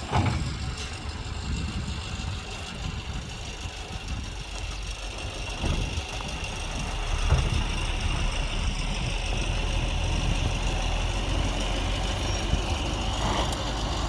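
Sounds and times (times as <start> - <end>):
diesel engine rumbling: 0.0 - 14.0
thump: 7.2 - 7.6.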